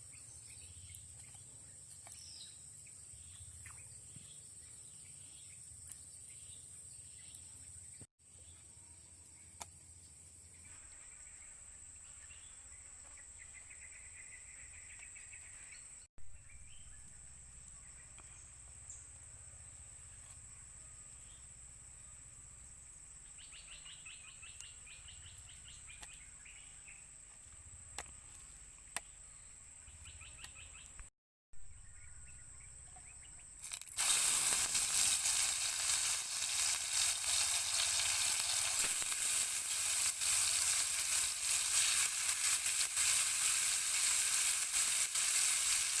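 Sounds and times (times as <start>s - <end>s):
bird or insect chirps: 0.0s - 46.0s
steak sizzling in a pan: 33.6s - 46.0s.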